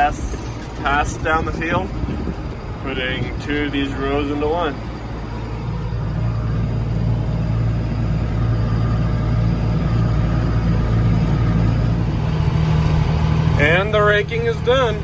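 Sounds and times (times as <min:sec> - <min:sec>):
tractor engine droning: 0:00.0 - 0:15.0.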